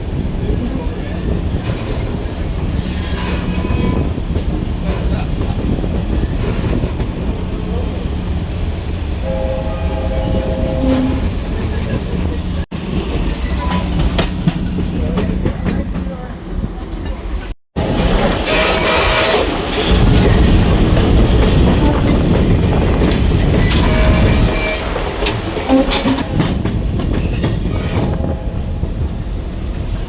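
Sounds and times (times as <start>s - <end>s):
train low rumble: 0.0s - 30.0s
locomotive horn: 9.2s - 11.4s, 17.8s - 20.1s, 23.5s - 26.5s.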